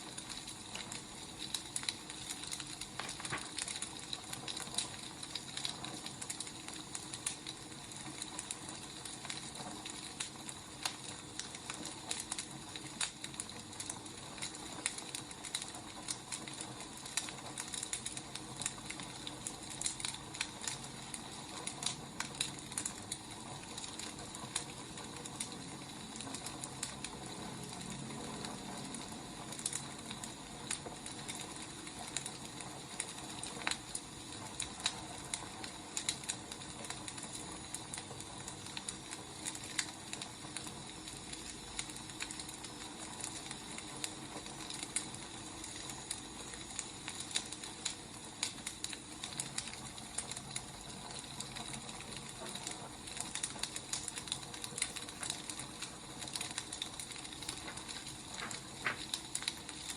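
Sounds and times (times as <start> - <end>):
firewood crackling: 0.0 - 59.9
sharp pops: 57.5 - 59.4.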